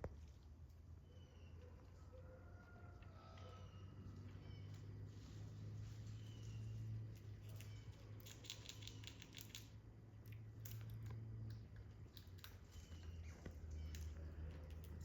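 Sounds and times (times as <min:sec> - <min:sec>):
quick clicks and scratchy ticks: 0:07.6 - 0:12.6.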